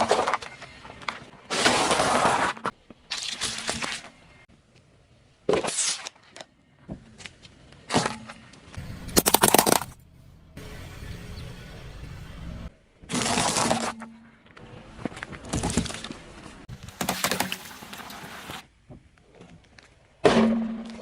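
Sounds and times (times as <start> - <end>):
objects crunching under car tyres: 9.2 - 10.0.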